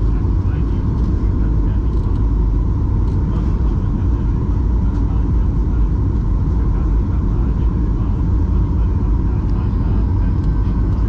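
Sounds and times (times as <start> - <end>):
faint high hum: 0.0 - 11.0
jet engine rumble: 0.0 - 11.0.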